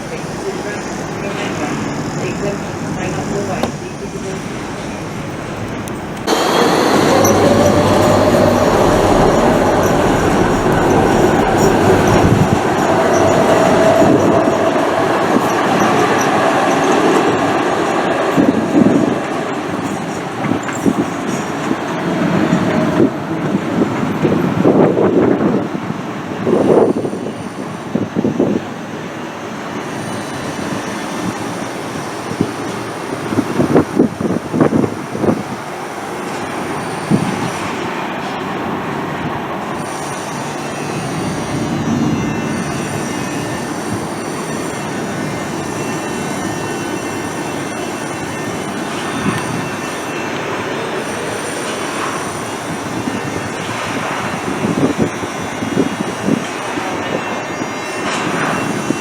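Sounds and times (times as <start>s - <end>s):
faint high squeal: 0.0s - 17.4s, 26.4s - 35.6s, 39.7s - 59.0s
train wheels rumbling on rail: 0.0s - 59.0s
high-pitched wheel tones: 0.7s - 21.7s.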